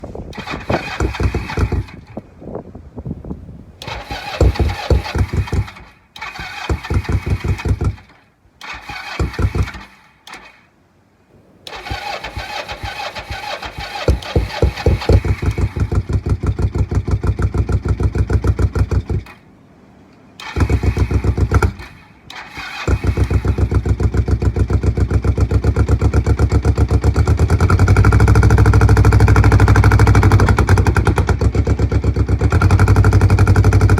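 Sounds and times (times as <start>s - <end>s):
starter motor cranking: 0.3s - 2.1s, 3.8s - 10.5s, 11.6s - 19.4s, 20.4s - 33.9s
motorcycle engine running: 0.4s - 2.2s, 4.2s - 5.8s, 11.7s - 19.4s, 20.4s - 22.0s, 22.8s - 33.9s.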